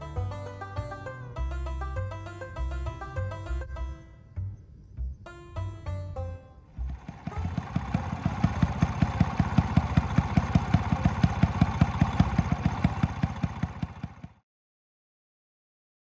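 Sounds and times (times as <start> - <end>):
small engine idling: 6.0 - 14.4.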